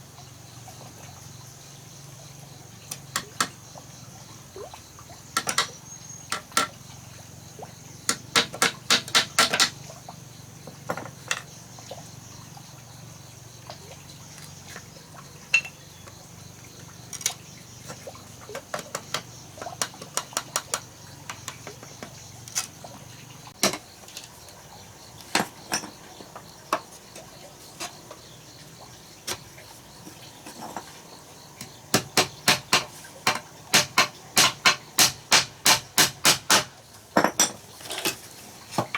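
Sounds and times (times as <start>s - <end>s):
hammer striking wood: 8.1s - 9.7s, 31.9s - 36.7s.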